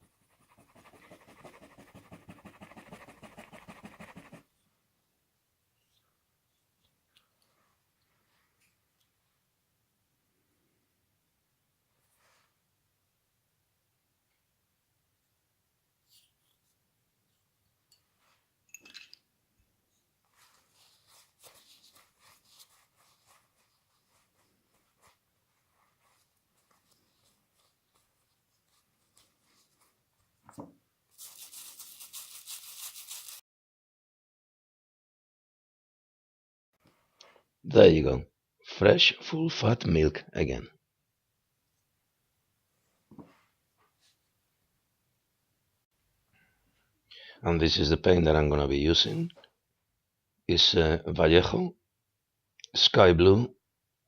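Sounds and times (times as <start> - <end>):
brush scrubbing plastic in water: 0.0 - 4.4, 20.4 - 30.0, 31.1 - 33.4
light scratching strokes: 0.0 - 4.4, 20.2 - 30.0, 31.2 - 33.4.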